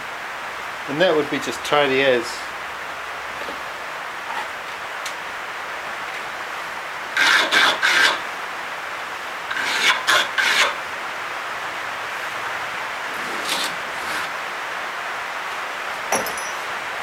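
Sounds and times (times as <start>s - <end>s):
abrasive scraping wood: 7.2s - 8.2s, 9.5s - 10.8s, 13.1s - 14.4s.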